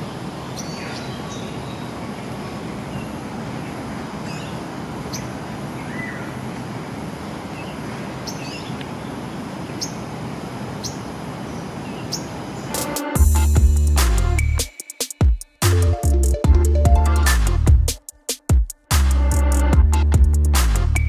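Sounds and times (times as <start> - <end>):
rushing background noise: 0.0 - 15.1
bird chirps: 0.4 - 2.0, 7.6 - 8.8.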